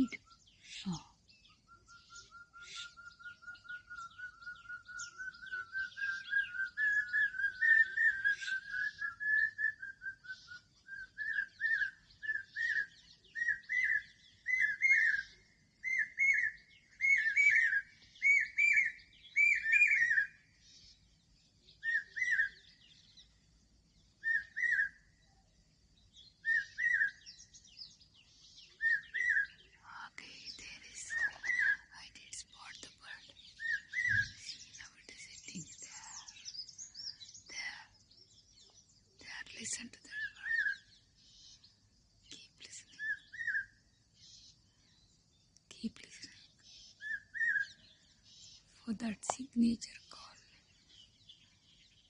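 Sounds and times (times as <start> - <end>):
bird whistled call: 0.0 - 20.5, 21.8 - 22.8, 24.2 - 25.1, 26.4 - 27.9, 28.7 - 29.6, 33.6 - 34.6, 43.0 - 43.8, 46.9 - 47.9
other birds high chirps: 0.0 - 52.0.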